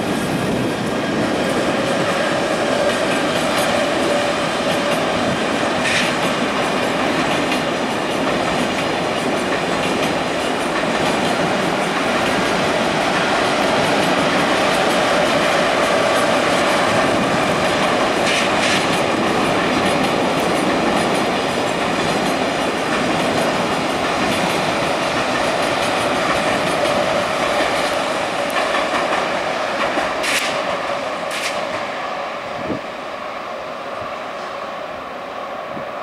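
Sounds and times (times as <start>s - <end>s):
sharp track clatters: 0.0s - 32.1s
train wheels rumbling on rails: 0.0s - 36.0s.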